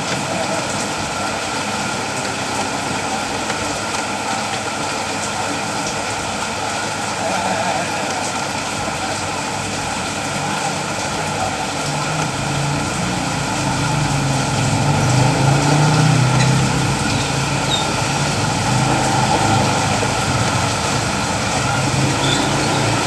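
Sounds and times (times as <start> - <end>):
engine humming: 8.6 - 23.0.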